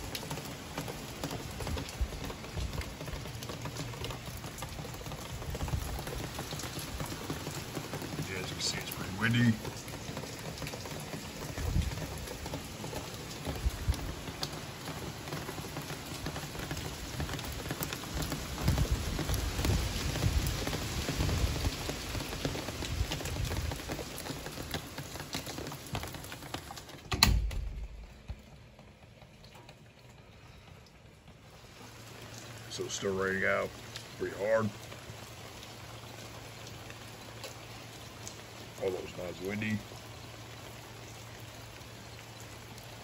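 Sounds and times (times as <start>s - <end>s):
heavy rain hissing: 0.0s - 27.0s, 31.4s - 43.0s
wind rumbling on microphone: 5.3s - 6.3s, 11.5s - 12.4s, 13.5s - 14.2s, 18.2s - 24.1s.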